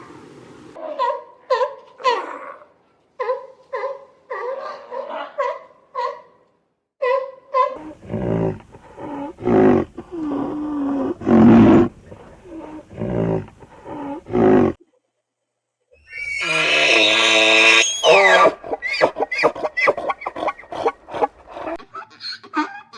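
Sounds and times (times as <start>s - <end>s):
high-pitched drawn-out animal call: 16.0s - 20.1s
animal throaty calls: 16.2s - 22.9s.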